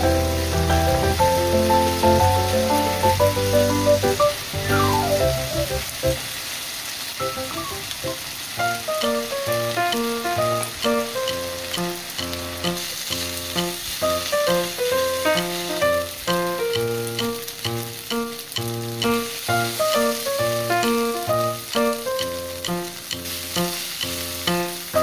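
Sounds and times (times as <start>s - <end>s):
fried rice sizzling on a pan: 0.0s - 25.0s
background music: 0.2s - 6.2s.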